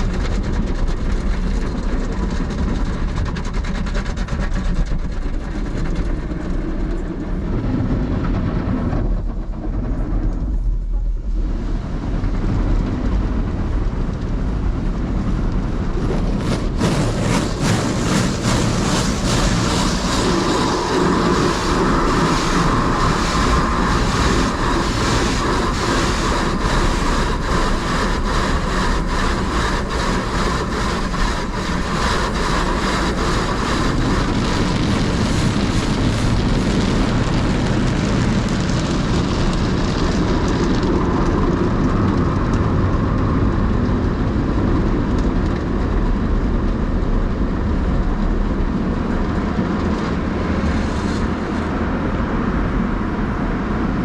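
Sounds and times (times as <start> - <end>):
car wash rushing noise: 10.5 - 45.9, 46.8 - 54.0.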